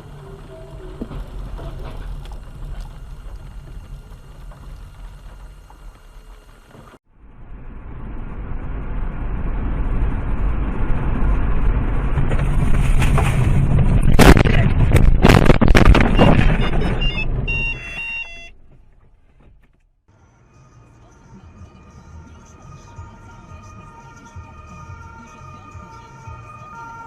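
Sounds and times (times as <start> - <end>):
road and engine noise: 0.0 - 27.0
loud crash impacts: 12.1 - 17.4
electronic beeping: 16.0 - 18.5.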